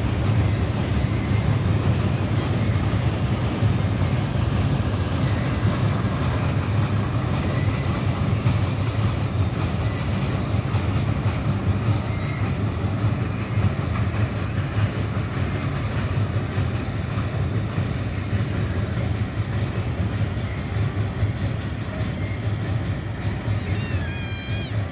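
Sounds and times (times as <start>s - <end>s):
freight train rumbling over bridge: 0.0s - 24.9s.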